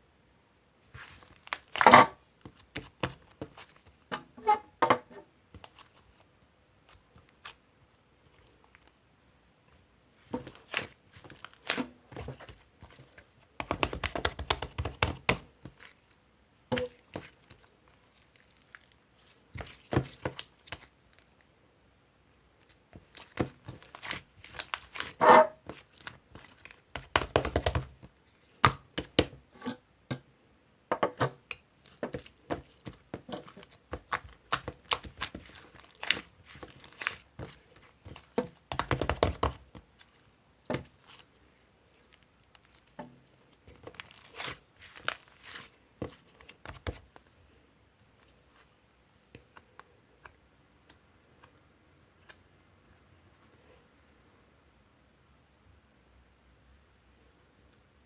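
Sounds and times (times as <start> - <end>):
crinkling and tearing: 1.0 - 4.0, 5.6 - 7.6, 10.2 - 21.4, 22.6 - 28.9, 31.5 - 47.3.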